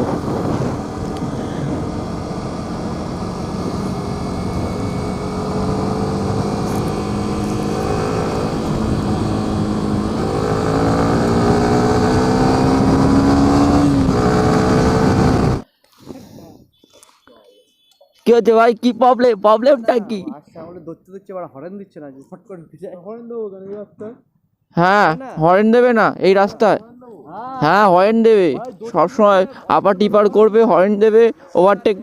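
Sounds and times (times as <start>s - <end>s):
motorcycle engine accelerating: 0.0s - 15.7s.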